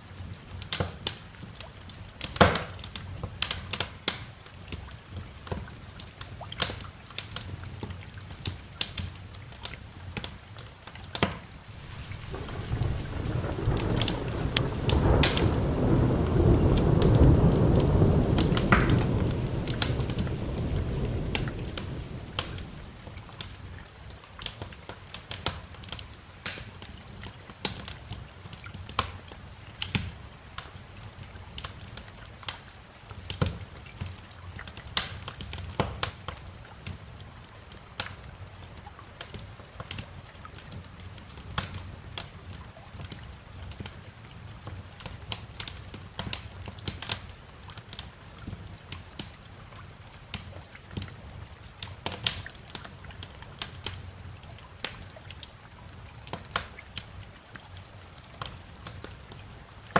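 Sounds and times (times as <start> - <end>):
steady rain: 0.0 - 59.9
wood fire crackling: 0.0 - 59.9
thunder rumbling: 11.6 - 23.8.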